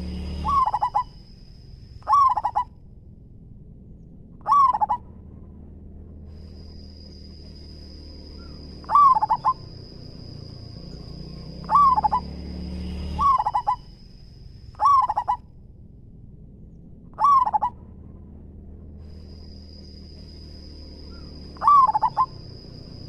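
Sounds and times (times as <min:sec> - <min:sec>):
dove cooing: 0:00.0 - 0:01.2, 0:02.0 - 0:02.7, 0:04.4 - 0:05.0, 0:08.4 - 0:12.4, 0:13.1 - 0:13.9, 0:14.8 - 0:15.4, 0:17.2 - 0:17.8, 0:21.1 - 0:23.0
faint high-pitched whine: 0:00.0 - 0:23.0.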